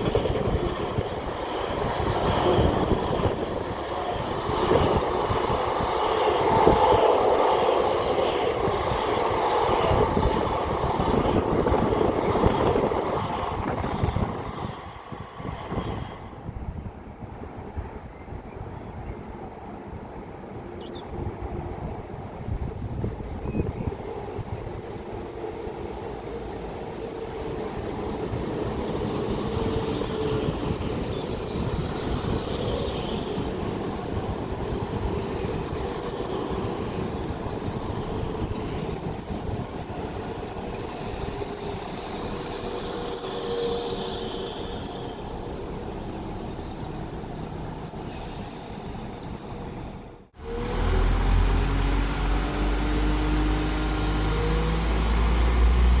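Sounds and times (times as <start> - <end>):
train wheels rumbling on rail: 0.0 - 56.0
diesel engine droning: 50.4 - 56.0.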